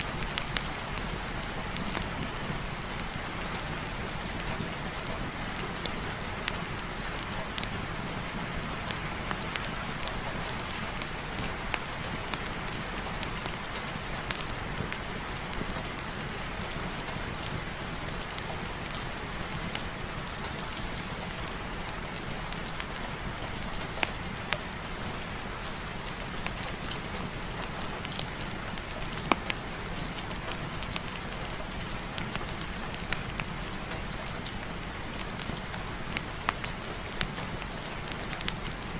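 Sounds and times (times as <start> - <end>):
rain falling: 0.0 - 38.9
sharp ticks and pops: 28.0 - 34.6, 35.2 - 38.8.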